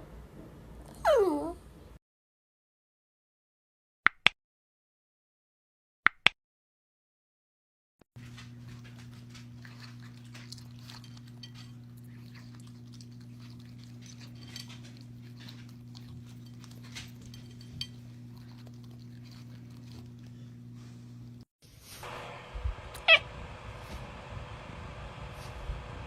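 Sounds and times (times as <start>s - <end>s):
low hum: 8.2s - 26.0s.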